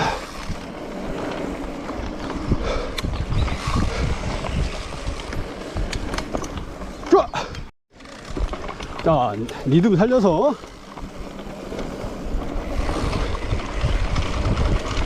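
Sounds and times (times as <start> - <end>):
wind on microphone: 0.0 - 7.7, 12.0 - 15.0
bike knocks and rattles: 3.0 - 11.5.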